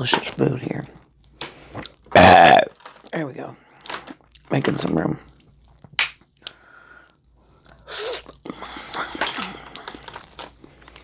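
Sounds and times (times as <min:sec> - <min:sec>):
wet chewing and crunching: 0:08.2 - 0:11.0.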